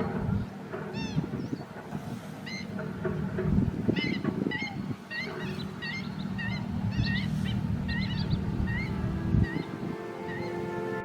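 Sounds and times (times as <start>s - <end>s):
stilt bird yelping calls: 0.0s - 1.7s, 2.3s - 10.6s
low rumble: 3.2s - 9.9s
music with long held notes: 5.4s - 11.0s.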